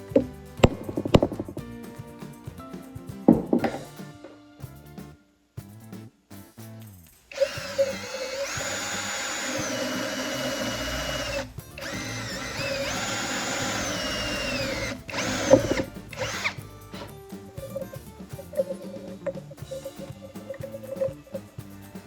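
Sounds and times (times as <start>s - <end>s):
electric power tool motor whining: 7.3s - 17.2s.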